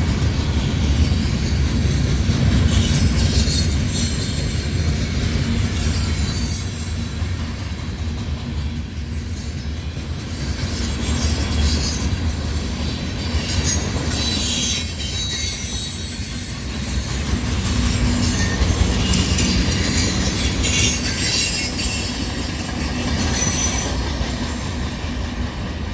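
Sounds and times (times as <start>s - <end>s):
steel wheels rumbling on rail: 0.0s - 25.9s
high-pitched wheel squeal: 5.8s - 7.2s, 12.9s - 22.6s.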